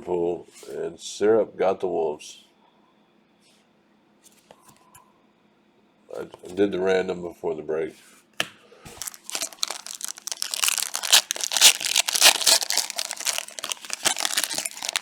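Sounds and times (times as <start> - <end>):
card pack wrapper tearing: 9.0 - 15.0.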